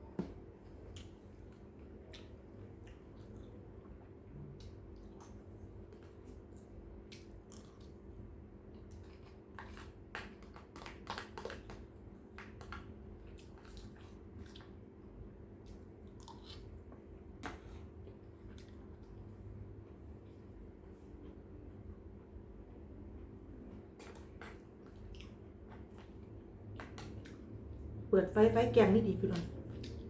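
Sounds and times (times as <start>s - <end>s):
person chewing food: 0.2s - 27.9s, 29.6s - 30.0s
steady low hum: 12.8s - 30.0s.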